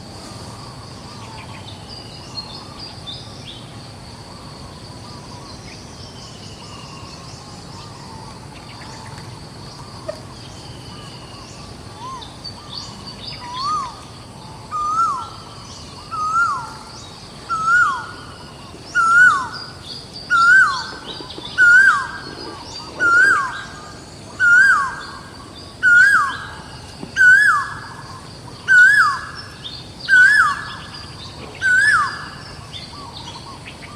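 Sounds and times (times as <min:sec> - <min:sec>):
birds chirping: 0:06.2 - 0:33.9
bird whistled call: 0:14.7 - 0:25.2, 0:25.8 - 0:26.6, 0:27.2 - 0:28.0, 0:28.7 - 0:33.9.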